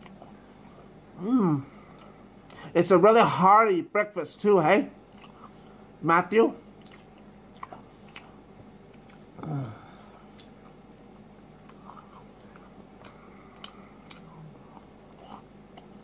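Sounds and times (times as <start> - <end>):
person chewing: 0.0 - 1.0, 1.7 - 2.7, 5.1 - 5.8, 6.7 - 16.0.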